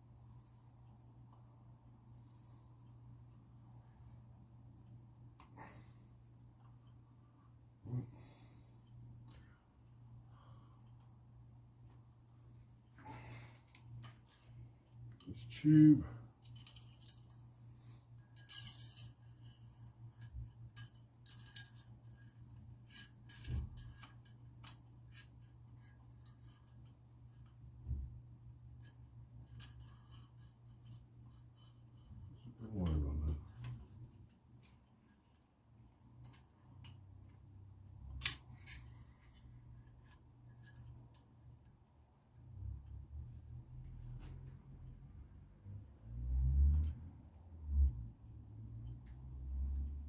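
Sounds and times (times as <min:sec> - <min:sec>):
faint low hum: 0:00.0 - 0:50.0
light metal clicks and scrapes: 0:16.3 - 0:43.0.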